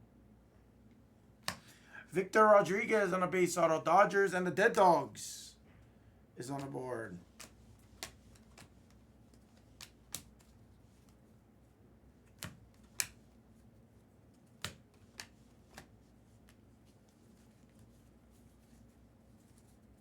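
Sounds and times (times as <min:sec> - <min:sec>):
trading cards snapping: 0:01.4 - 0:01.8, 0:06.6 - 0:11.2, 0:12.2 - 0:13.4, 0:14.4 - 0:16.6.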